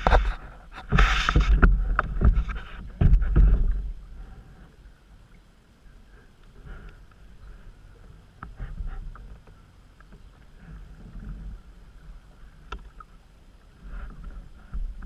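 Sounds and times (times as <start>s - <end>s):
paddle strokes splashing: 0.0s - 5.1s.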